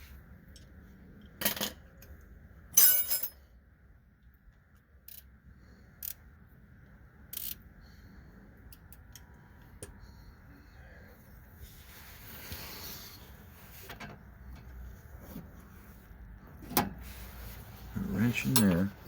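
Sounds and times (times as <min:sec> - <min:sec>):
metal tools clinking on steel: 0:02.7 - 0:03.5, 0:18.2 - 0:19.0.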